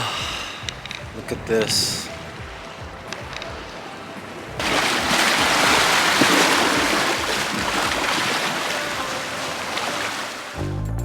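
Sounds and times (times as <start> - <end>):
sea waves washing on shore: 0.0 - 10.6.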